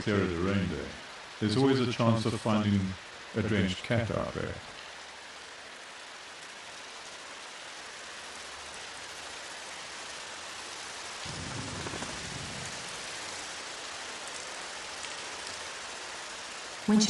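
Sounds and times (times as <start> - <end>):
steady rain: 0.0 - 17.0
thunder rumble: 11.1 - 15.0.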